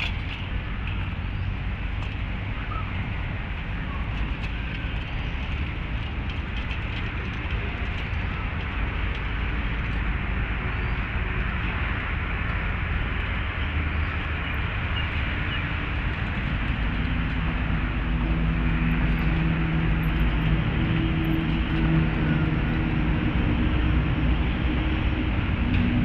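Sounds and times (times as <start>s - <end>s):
city traffic rumble: 0.0s - 26.0s
vehicle engine low hum: 0.0s - 26.0s.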